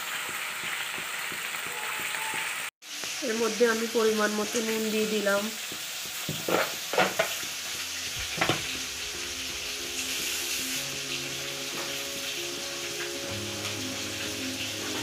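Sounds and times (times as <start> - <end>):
oil sizzling with frying food: 0.0 - 15.0
soft background music: 7.3 - 15.0.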